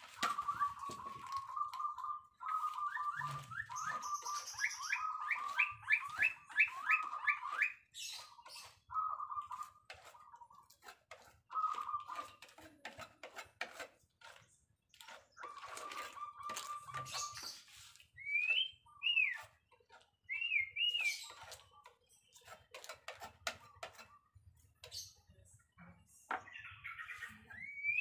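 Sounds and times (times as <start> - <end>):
paper and plastic rustling: 0.0 - 1.8
bird whistling and chirping: 0.1 - 9.8, 11.5 - 12.3, 15.3 - 19.6, 20.2 - 21.4, 26.5 - 28.0.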